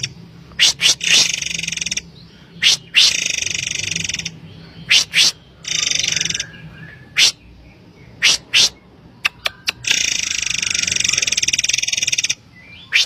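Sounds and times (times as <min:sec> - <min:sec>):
bird sharp call notes: 0:00.0 - 0:02.0, 0:02.6 - 0:07.4, 0:08.2 - 0:13.0
bird buzzy rattling trills: 0:00.0 - 0:06.5, 0:09.8 - 0:13.0.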